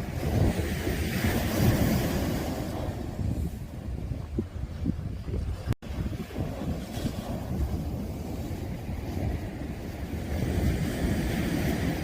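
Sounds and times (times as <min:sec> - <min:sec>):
sea waves washing on shore: 0:00.0 - 0:12.0
wind buffeting microphone: 0:00.0 - 0:12.0.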